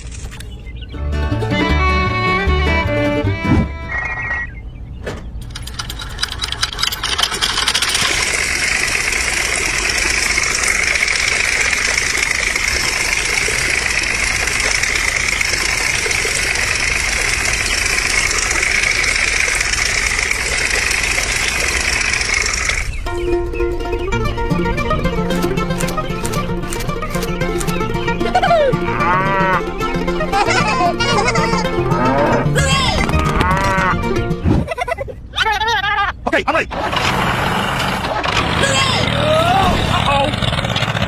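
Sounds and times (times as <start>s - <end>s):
small electric motor humming: 6.8s - 22.9s.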